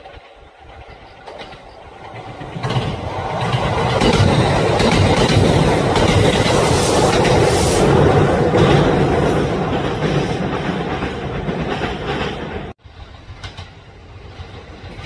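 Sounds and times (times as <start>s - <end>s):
electric train passing: 0.0s - 15.0s.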